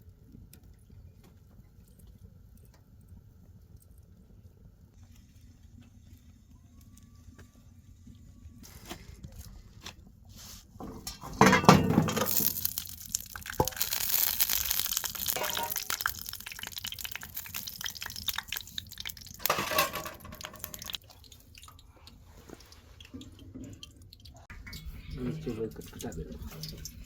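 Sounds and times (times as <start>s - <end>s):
water pouring and splashing: 11.3s - 27.0s.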